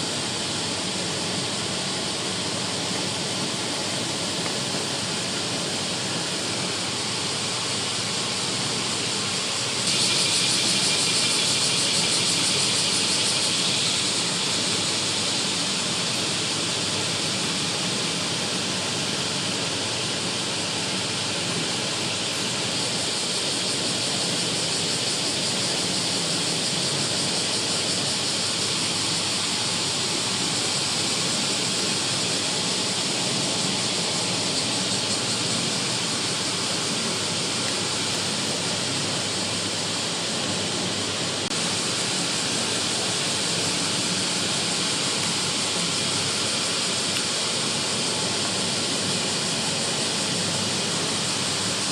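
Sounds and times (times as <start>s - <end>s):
heavy rain hissing: 0.0s - 51.9s.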